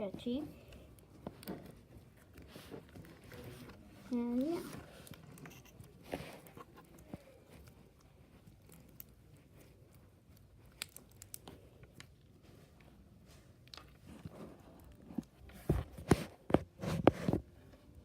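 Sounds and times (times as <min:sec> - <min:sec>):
bead slime clicking and crunching: 0:06.8 - 0:12.3.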